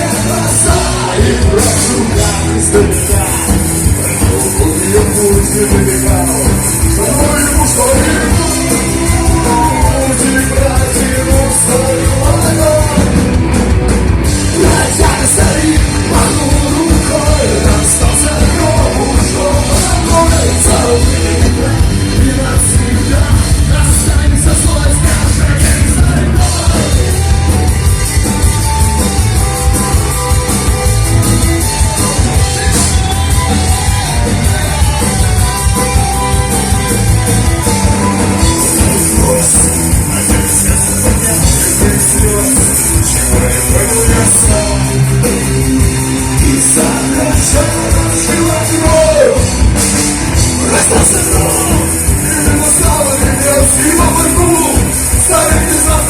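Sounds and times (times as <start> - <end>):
person singing: 0.0 - 13.4, 14.4 - 27.9, 37.6 - 49.7, 50.5 - 56.0
rock band playing: 0.0 - 56.0.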